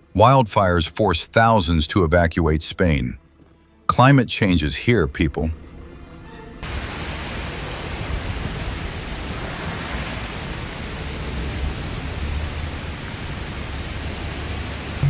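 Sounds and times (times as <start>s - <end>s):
steady rushing noise: 6.6s - 15.0s.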